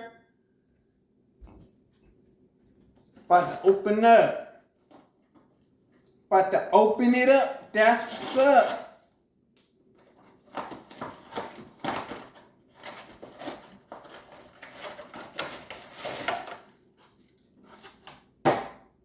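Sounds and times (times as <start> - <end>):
cardboard box tearing and rustling: 10.4 - 16.6.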